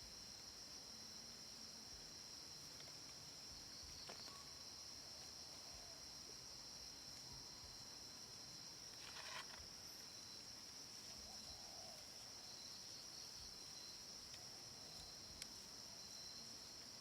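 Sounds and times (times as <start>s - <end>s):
insects trilling: 0.0s - 17.0s
brief rustle: 8.9s - 9.7s.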